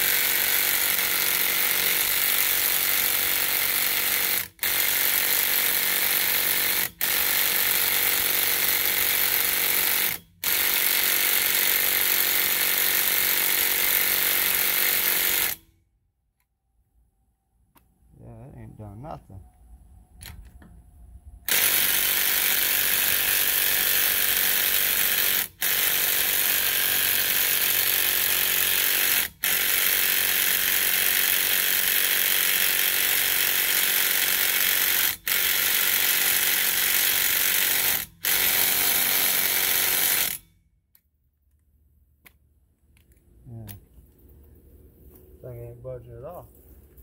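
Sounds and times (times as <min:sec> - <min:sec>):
impact driver hammering on lug nut: 0:00.0 - 0:15.6, 0:21.5 - 0:40.4.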